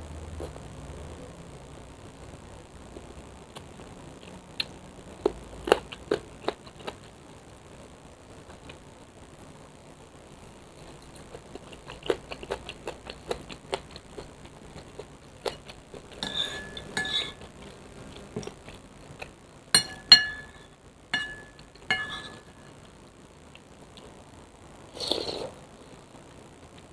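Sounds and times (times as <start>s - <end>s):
utensils clinking against a bowl: 15.5s - 17.5s, 19.8s - 22.6s.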